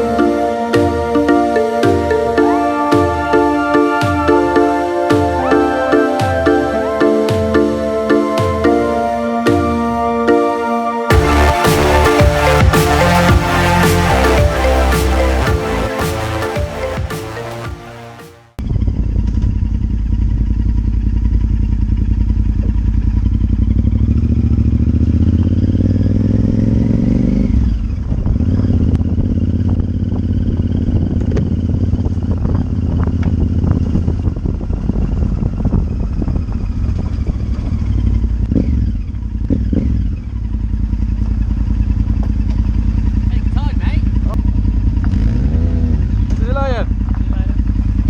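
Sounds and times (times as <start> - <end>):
motorcycle engine on road: 18.6 - 48.0.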